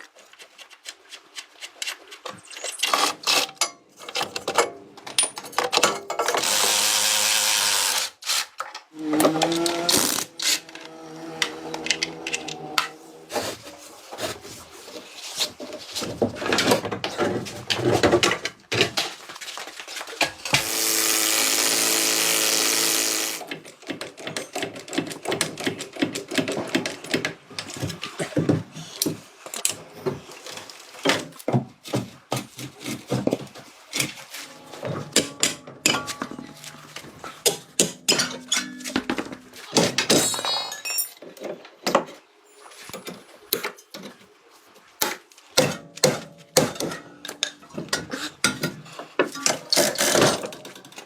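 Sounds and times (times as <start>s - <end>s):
power tool running: 6.4s - 8.2s, 20.6s - 23.5s.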